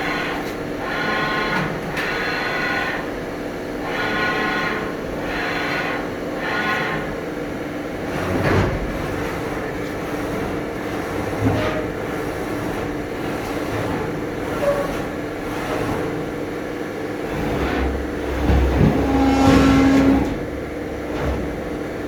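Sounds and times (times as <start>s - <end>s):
mechanical rumble: 8.0s - 22.0s.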